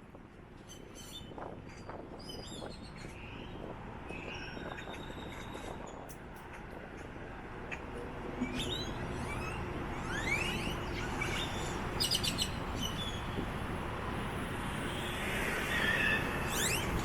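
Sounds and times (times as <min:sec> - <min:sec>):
street traffic hum: 0:00.0 - 0:17.0
birds whistling and clicking: 0:08.5 - 0:13.3, 0:15.8 - 0:17.0.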